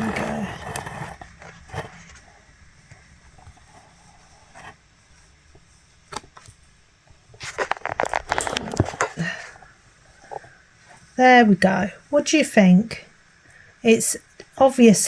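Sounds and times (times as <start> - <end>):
packaging rustling: 7.4 - 9.4.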